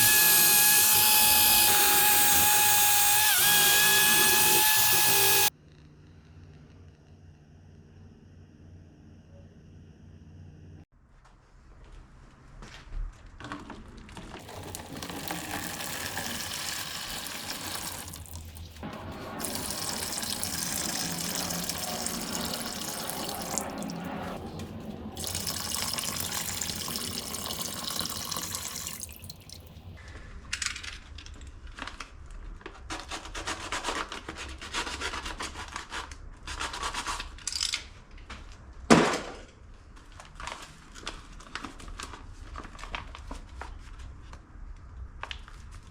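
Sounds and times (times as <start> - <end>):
water running from tap: 0.0 - 5.5, 14.4 - 24.4, 25.2 - 29.9.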